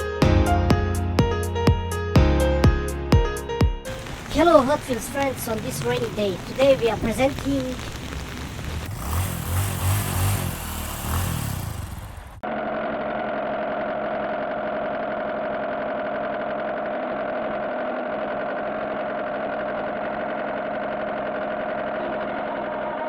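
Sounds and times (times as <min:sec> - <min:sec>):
car engine idling: 0:07.8 - 0:12.4.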